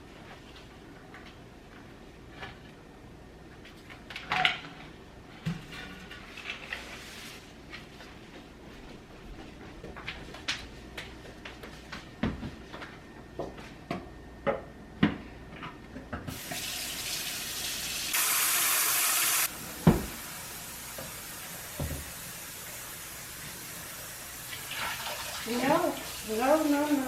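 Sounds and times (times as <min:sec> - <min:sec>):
tap water running into sink: 0:16.3 - 0:23.6, 0:24.4 - 0:26.8.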